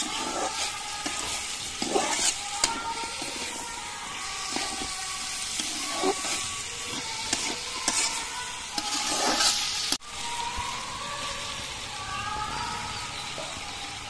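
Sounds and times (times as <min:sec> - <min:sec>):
metal spatula scraping pan: 0:00.0 - 0:10.0
vegetables sizzling in oil: 0:00.0 - 0:14.0.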